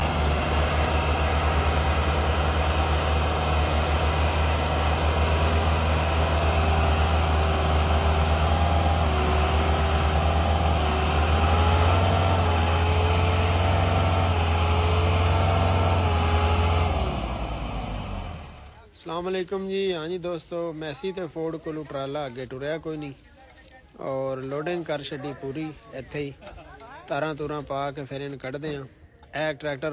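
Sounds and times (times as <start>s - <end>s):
diesel tractor engine under load: 0.0s - 18.8s.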